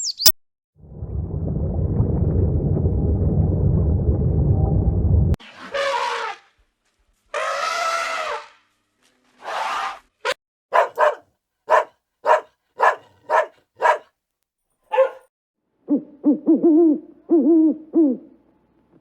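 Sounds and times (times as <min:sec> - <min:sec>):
animal calling: 0:10.7 - 0:14.0, 0:14.9 - 0:15.2.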